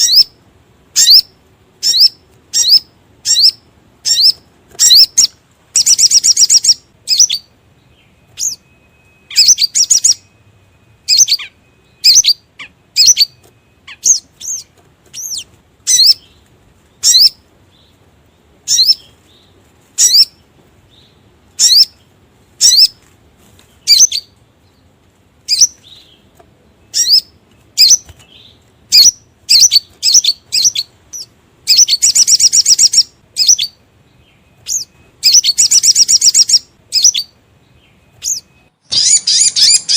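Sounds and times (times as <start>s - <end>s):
bird high chirps: 0.0s - 39.9s
bird rapid chattering trill: 1.0s - 7.5s, 9.3s - 10.3s, 11.1s - 16.3s, 26.9s - 33.8s, 34.6s - 37.3s, 38.2s - 39.9s.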